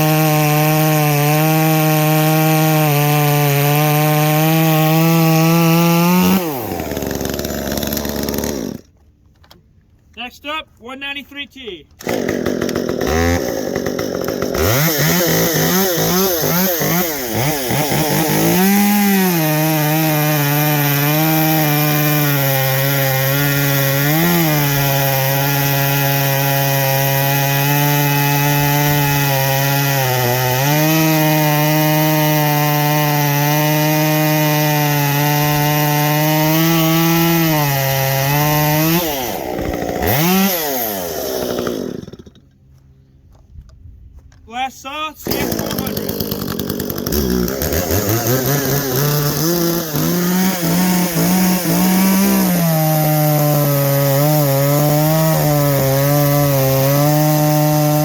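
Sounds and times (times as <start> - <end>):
chainsaw cutting wood: 0.0 - 9.2, 11.3 - 42.9, 44.9 - 58.0.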